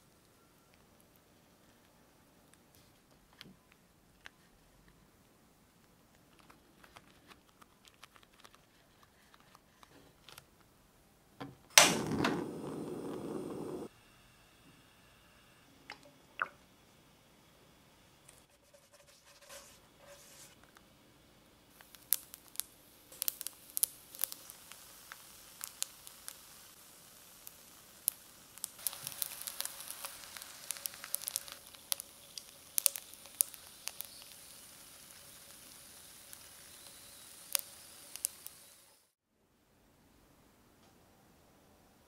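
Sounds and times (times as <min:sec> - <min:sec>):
oil sizzling with pops and crackles: 0:11.7 - 0:13.9, 0:21.7 - 0:39.2.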